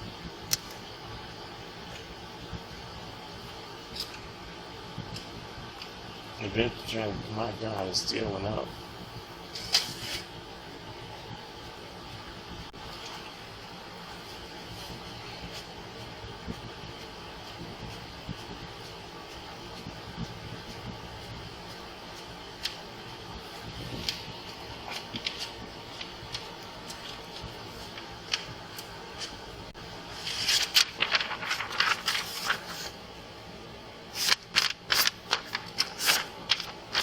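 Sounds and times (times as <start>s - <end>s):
steady low hum: 0.0s - 37.0s
paper rustling: 23.6s - 29.4s, 30.1s - 33.0s, 34.1s - 37.0s.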